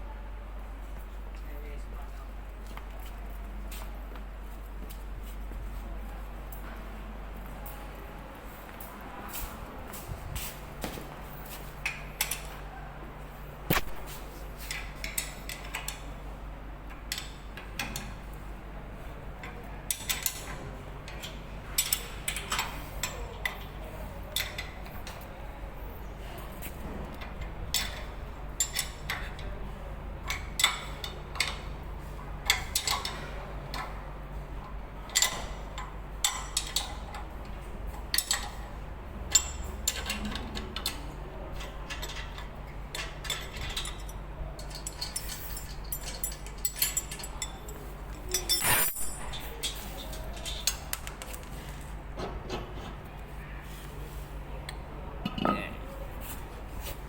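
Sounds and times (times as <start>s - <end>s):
metallic clinks and knocks: 41.9s - 51.5s.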